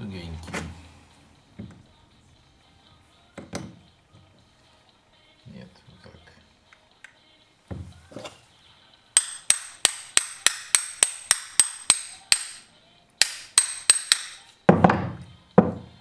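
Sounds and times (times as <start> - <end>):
hammer tapping metal: 9.2 - 15.9.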